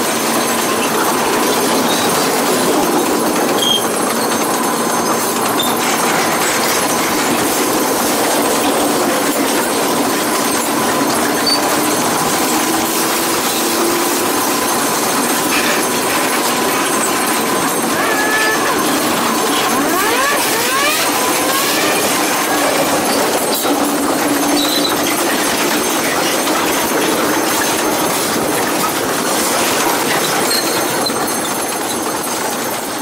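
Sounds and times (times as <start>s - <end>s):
train wheels rushing on rail: 0.0s - 33.0s
wheel clicks over rail joints: 0.0s - 33.0s.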